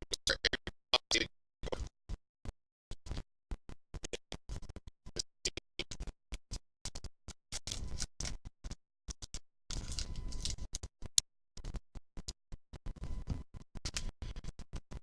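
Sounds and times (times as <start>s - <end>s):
scratchy handling and rustling: 6.9s - 10.9s.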